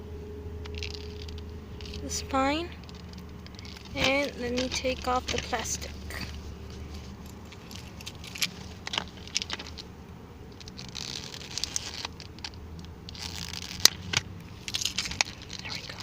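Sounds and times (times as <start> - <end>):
plastic shrink wrap crinkling: 0.7 - 9.9, 10.5 - 16.0.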